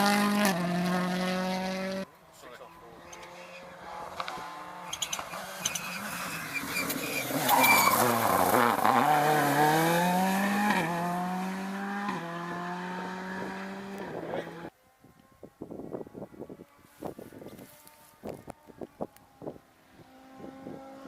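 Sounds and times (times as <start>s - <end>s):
rally car engine: 0.0s - 15.3s, 18.0s - 21.0s
tyre squeal: 4.9s - 9.0s.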